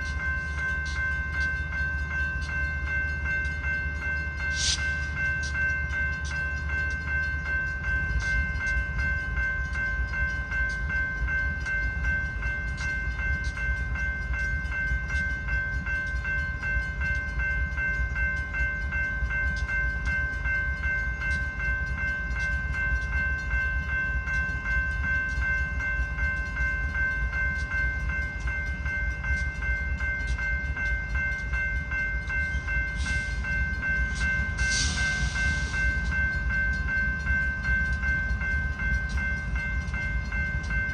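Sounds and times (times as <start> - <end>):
freight train rumble: 0.0 - 40.9
railroad crossing bell ringing: 0.0 - 40.9.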